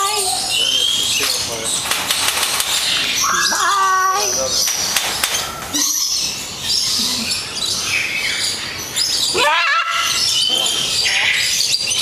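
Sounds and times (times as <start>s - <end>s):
birds chirping and whistling: 0.0s - 12.0s
loud wavering bird call: 8.9s - 11.8s.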